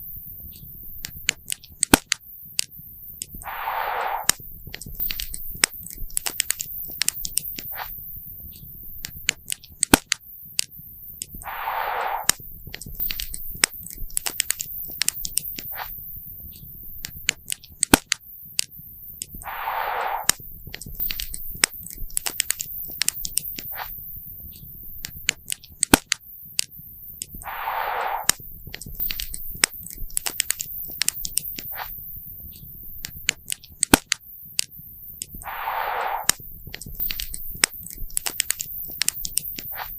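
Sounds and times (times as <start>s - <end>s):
short hiss: 3.4s - 4.4s, 11.4s - 12.4s, 19.4s - 20.4s, 27.4s - 28.5s, 35.4s - 38.0s.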